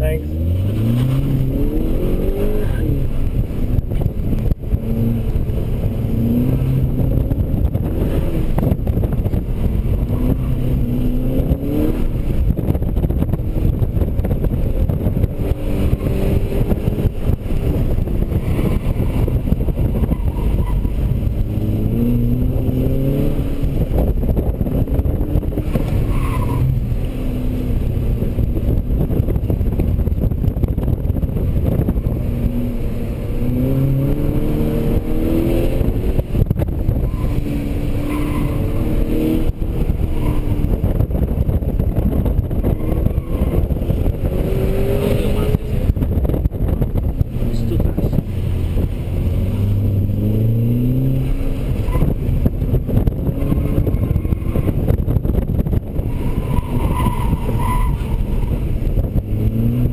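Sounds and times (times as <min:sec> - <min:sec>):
car engine accelerating: 0:00.0 - 0:59.9
low rumble of road noise: 0:00.0 - 0:59.9.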